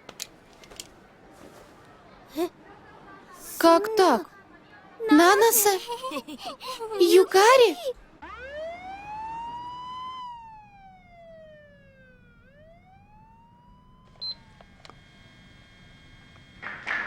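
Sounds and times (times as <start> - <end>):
cartoon whistling siren tone: 8.2 - 14.5
click: 14.2 - 15.0.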